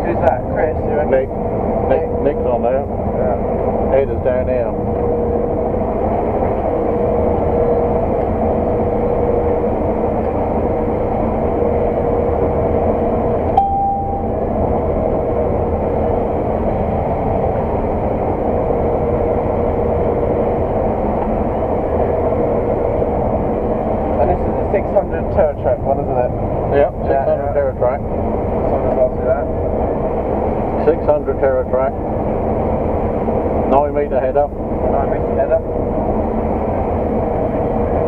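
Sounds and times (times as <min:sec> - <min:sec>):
combine harvester drone: 0:00.0 - 0:38.0
constant whine: 0:00.0 - 0:38.0
short higher tone: 0:13.5 - 0:14.6.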